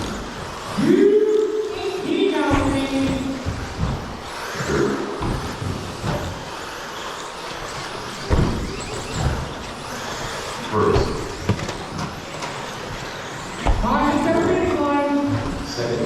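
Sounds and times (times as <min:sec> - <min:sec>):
rc trucks motors whirring: 0:00.0 - 0:16.0
short thumps: 0:07.5 - 0:15.8.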